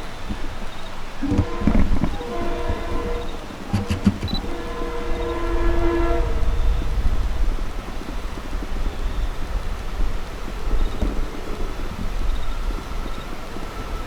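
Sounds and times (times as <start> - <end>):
electric train rumbling: 0.0 - 14.0
train wheel clicks: 0.3 - 4.6
train horn chord: 1.2 - 7.4.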